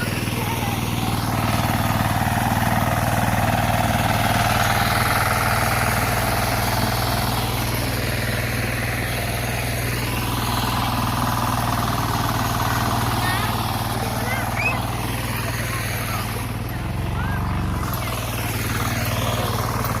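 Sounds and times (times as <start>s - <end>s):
diesel engine running steadily: 0.0s - 20.0s.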